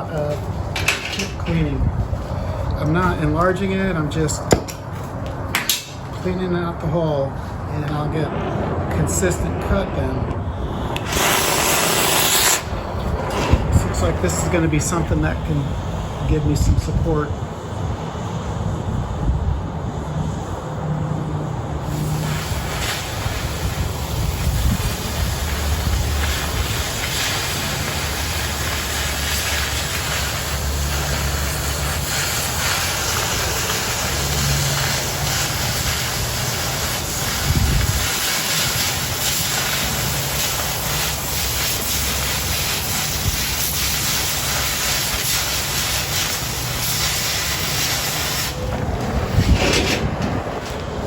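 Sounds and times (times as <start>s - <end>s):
cutting torch hissing on steel: 10.5s - 50.2s.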